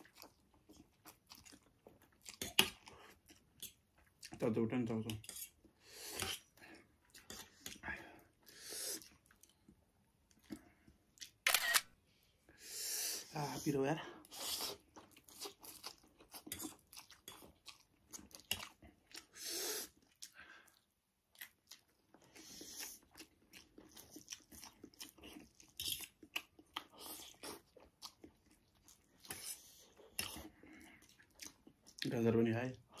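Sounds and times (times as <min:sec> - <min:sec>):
chewing and mouth smacking: 0:00.0 - 0:04.4, 0:07.0 - 0:07.8, 0:09.0 - 0:11.4, 0:14.6 - 0:19.3, 0:19.9 - 0:32.1.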